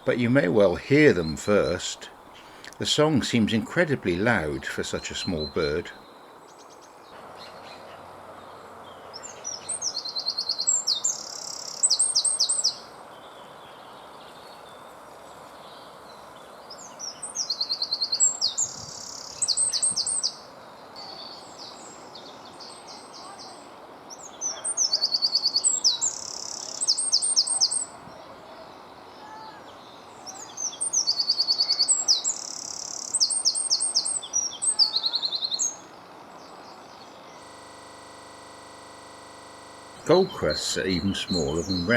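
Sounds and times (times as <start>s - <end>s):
wren singing trills: 0.0s - 6.0s, 9.2s - 12.9s, 17.0s - 20.4s, 24.2s - 27.9s, 29.8s - 41.9s.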